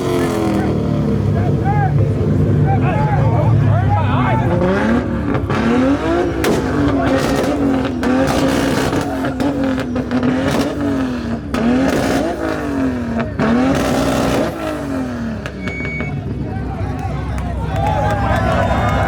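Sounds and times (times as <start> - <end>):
sharp exhaust cracks: 0.0 - 16.4
car engine revving: 0.0 - 19.0.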